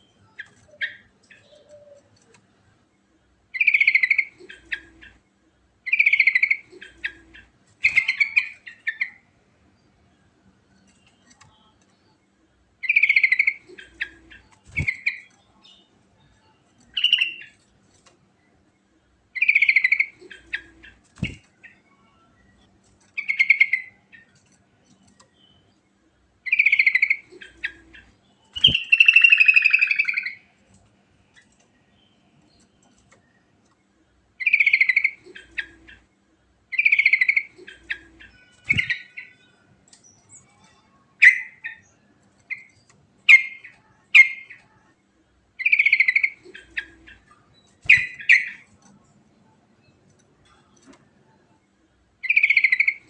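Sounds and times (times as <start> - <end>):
bulbul singing warbled phrases: 19.4 - 21.8, 26.5 - 30.4, 36.7 - 39.4, 42.5 - 44.8, 45.6 - 47.2, 47.8 - 48.7, 52.2 - 53.0.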